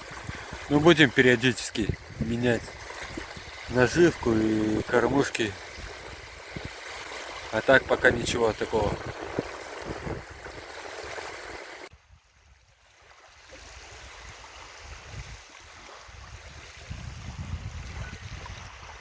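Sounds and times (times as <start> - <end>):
waves washing on shore: 0.0 - 11.9
wind rumbling on microphone: 0.0 - 12.3, 13.8 - 19.0.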